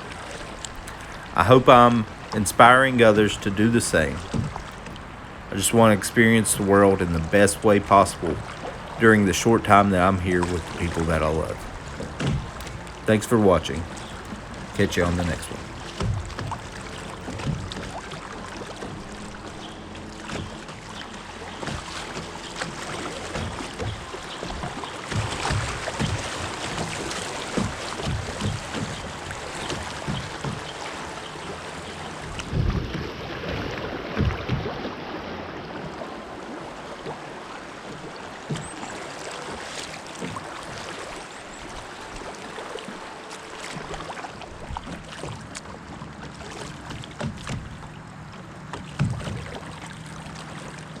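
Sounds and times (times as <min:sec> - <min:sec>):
wind buffeting microphone: 0:00.0 - 0:18.2
water around a kayak: 0:00.0 - 0:51.0.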